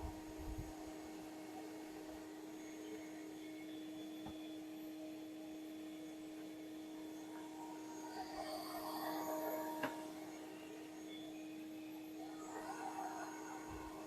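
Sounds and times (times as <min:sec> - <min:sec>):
steady motor hum: 0:00.0 - 0:14.0.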